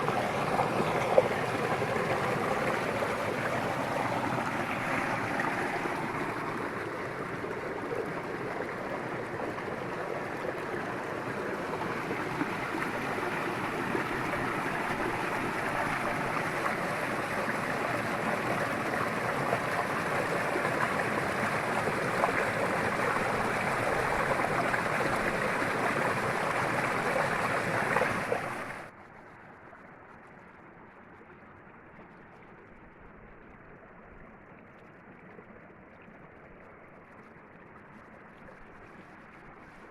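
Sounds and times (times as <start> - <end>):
river water rushing: 0.0 - 28.9
dull water sound: 0.0 - 39.9.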